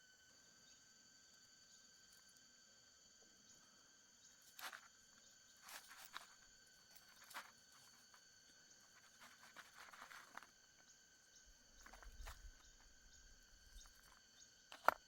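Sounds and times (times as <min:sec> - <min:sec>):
faint rustles: 0:05.5 - 0:15.0.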